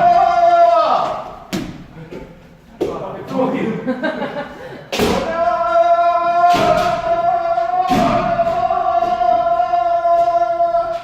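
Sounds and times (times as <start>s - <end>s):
person shouting sustained: 5.3s - 11.0s
stamping footwork and strikes: 6.4s - 9.4s.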